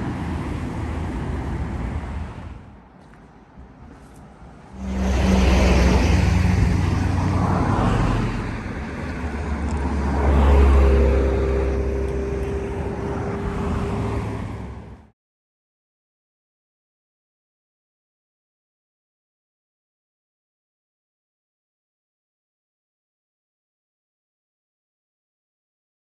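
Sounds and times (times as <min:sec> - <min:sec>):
vehicle engine and road noise: 0:00.0 - 0:15.2.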